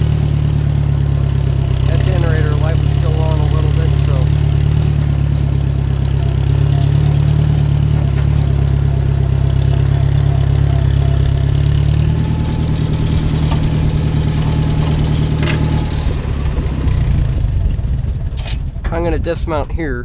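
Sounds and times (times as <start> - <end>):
tractor engine idling: 0.0 - 20.0
metal clank: 12.1 - 16.2.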